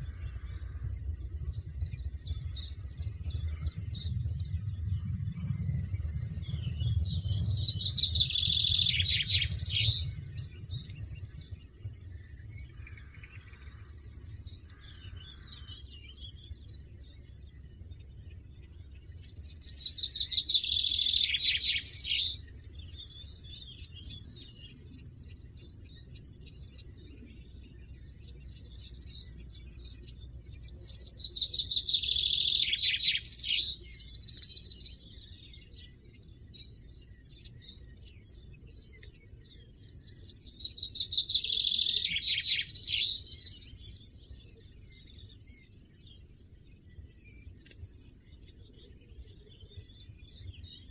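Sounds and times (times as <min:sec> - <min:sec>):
quiet bird trills: 0:00.0 - 0:17.4, 0:19.1 - 0:50.9
goldfinch twittering: 0:05.5 - 0:11.6.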